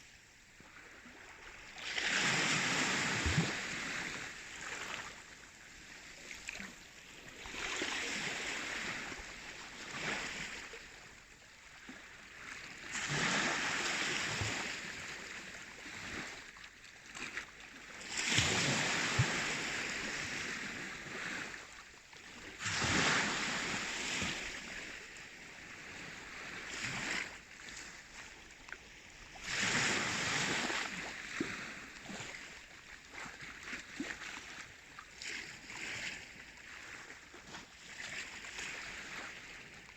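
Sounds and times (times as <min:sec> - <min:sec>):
sea waves breaking: 0:01.1 - 0:10.8, 0:22.4 - 0:32.7.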